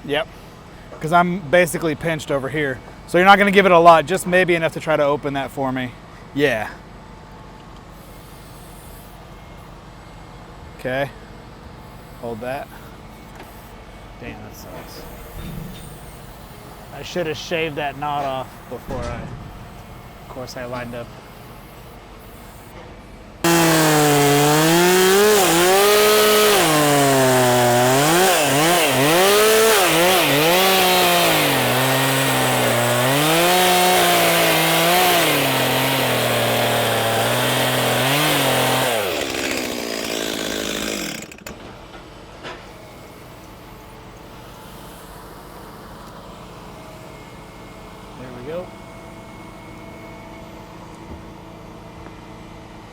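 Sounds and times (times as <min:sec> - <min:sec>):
chainsaw cutting wood: 0:23.4 - 0:41.6.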